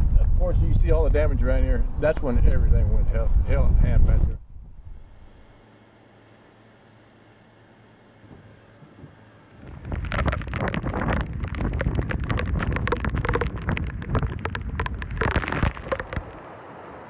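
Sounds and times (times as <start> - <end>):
hurricane wind gusting: 0.0 - 5.5, 9.6 - 17.0
sharp crackling hits: 9.6 - 16.4
driving rain: 9.6 - 17.0.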